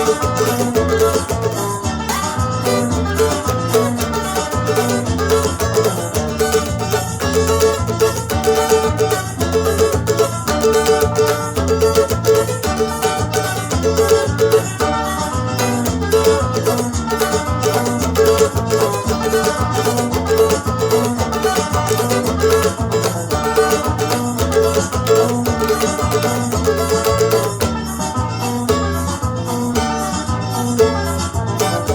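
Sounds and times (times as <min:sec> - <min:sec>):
recorded music with steady beat: 0:00.0 - 0:31.9
small guitar strummed: 0:00.0 - 0:31.9.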